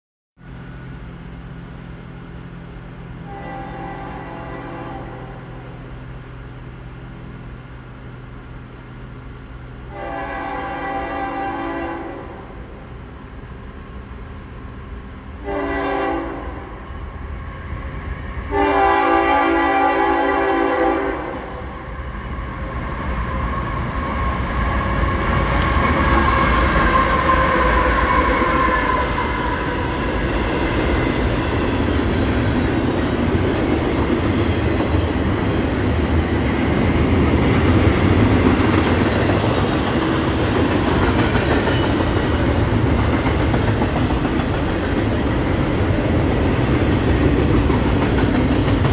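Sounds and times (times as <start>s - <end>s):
diesel locomotive rumble: 0.4s - 48.9s
freight cars rolling on rails: 0.5s - 48.9s
locomotive air horn: 3.2s - 5.7s, 9.9s - 12.8s, 15.4s - 16.8s, 18.4s - 22.0s, 23.5s - 30.2s.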